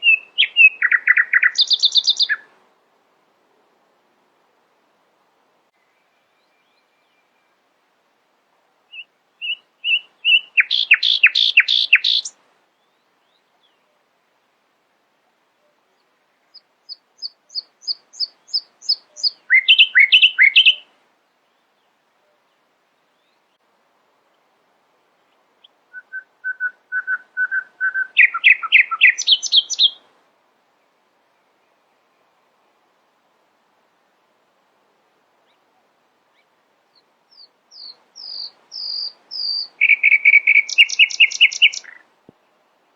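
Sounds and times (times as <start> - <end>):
songbird singing: 0.0 - 2.6, 5.7 - 42.9.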